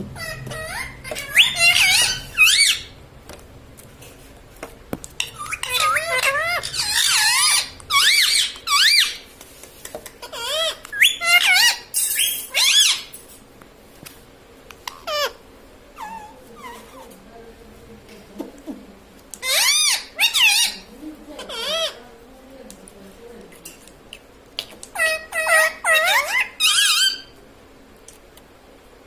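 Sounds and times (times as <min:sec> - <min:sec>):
parakeet squeaking and squawking: 0:00.0 - 0:03.0, 0:05.1 - 0:09.3, 0:10.2 - 0:13.2, 0:14.8 - 0:17.1, 0:19.4 - 0:22.0, 0:24.6 - 0:27.4.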